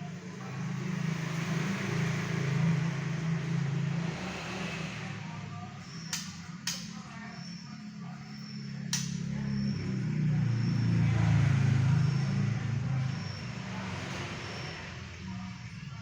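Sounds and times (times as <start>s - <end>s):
steady low hum: 0.0s - 16.0s
vehicle passing: 0.0s - 16.0s
sharp clicks: 6.1s - 7.0s, 8.9s - 9.3s.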